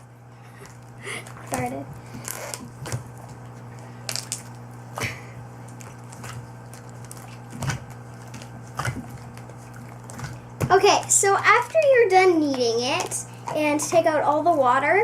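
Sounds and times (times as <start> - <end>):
slime squishing: 0.5 - 15.0.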